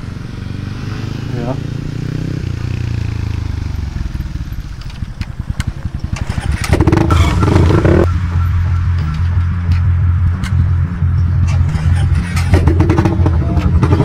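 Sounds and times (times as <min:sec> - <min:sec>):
motorcycle engine idling: 0:01.3 - 0:09.6.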